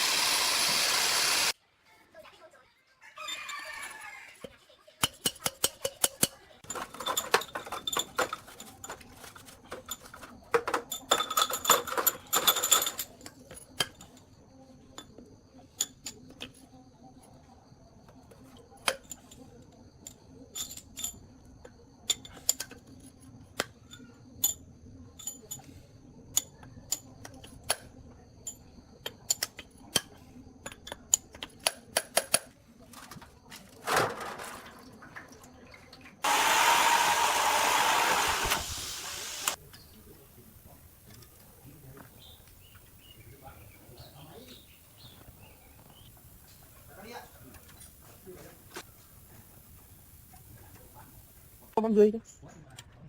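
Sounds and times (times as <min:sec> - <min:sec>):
metal tools clinking: 0:06.7 - 0:13.5.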